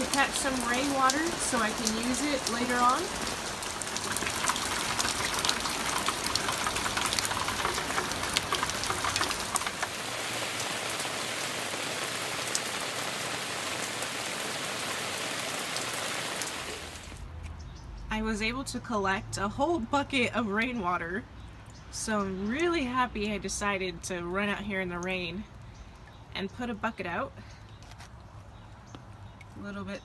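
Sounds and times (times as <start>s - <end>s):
heavy rain falling: 0.0s - 17.2s.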